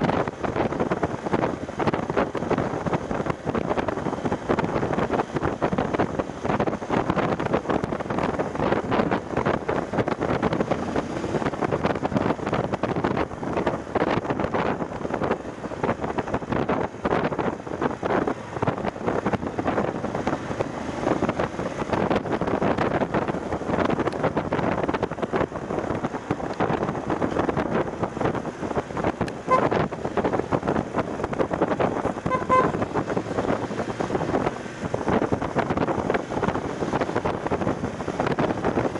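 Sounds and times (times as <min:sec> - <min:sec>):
wind buffeting microphone: 0:00.0 - 0:38.9
short tones: 0:32.2 - 0:32.8.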